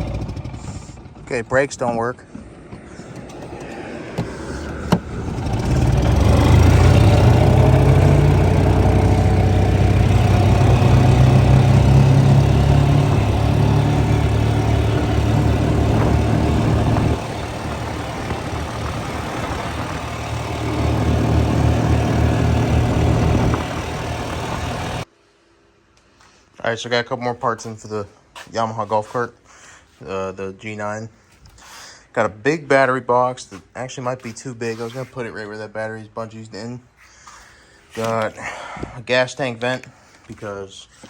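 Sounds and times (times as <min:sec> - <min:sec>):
golf cart engine revving: 0:00.0 - 0:01.3, 0:02.4 - 0:25.1.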